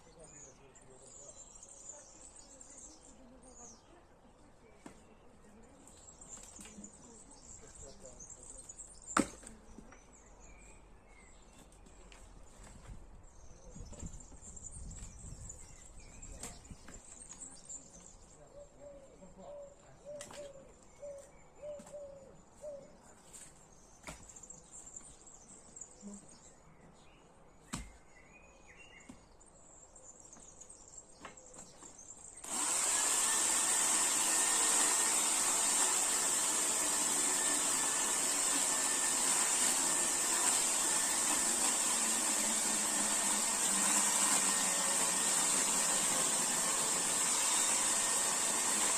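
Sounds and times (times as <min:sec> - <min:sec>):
birds chirping: 0:00.0 - 0:48.9
chainsaw running: 0:32.4 - 0:48.9.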